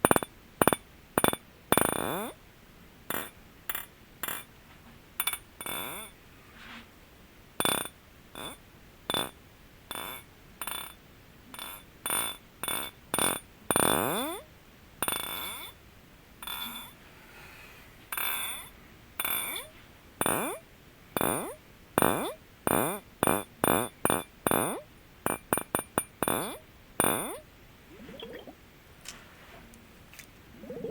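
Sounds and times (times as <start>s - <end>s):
fingers tapping on glass: 0.0s - 2.1s, 3.1s - 4.5s, 5.2s - 6.1s, 7.6s - 11.0s, 11.6s - 14.4s, 15.0s - 15.7s, 16.4s - 16.9s, 18.1s - 19.6s, 21.2s - 27.4s.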